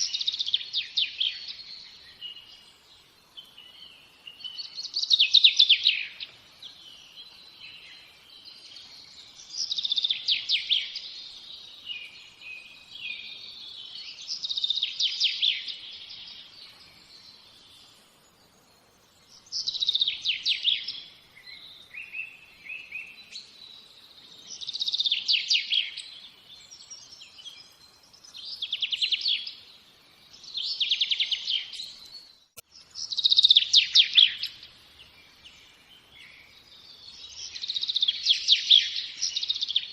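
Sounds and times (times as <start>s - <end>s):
soft bird chirps: 0.0s - 39.9s
songbird trilling: 19.4s - 23.4s, 33.0s - 34.7s, 37.2s - 39.9s.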